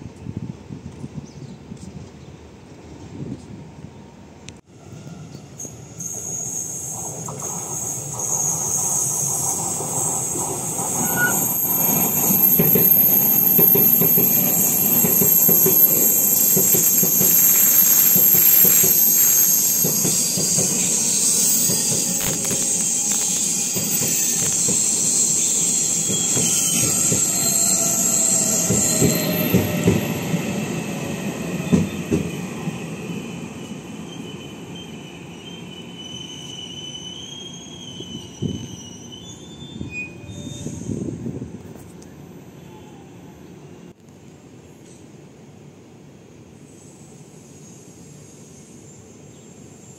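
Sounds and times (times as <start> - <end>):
train wheels rumbling on track: 4.8 - 42.2
high steady squeal: 5.1 - 41.2.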